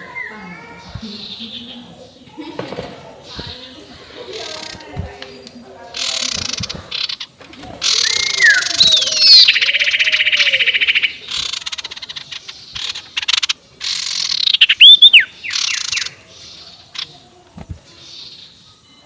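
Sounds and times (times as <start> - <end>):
bird hissing chatter: 2.8 - 5.2, 5.9 - 17.3
bird cackling trill: 6.0 - 16.2.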